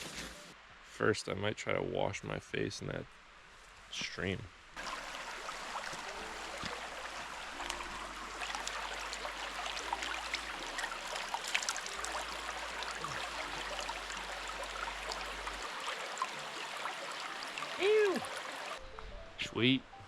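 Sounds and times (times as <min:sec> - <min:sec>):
small splashes and drips: 0:04.8 - 0:18.8
stream running over rocks: 0:04.8 - 0:18.8.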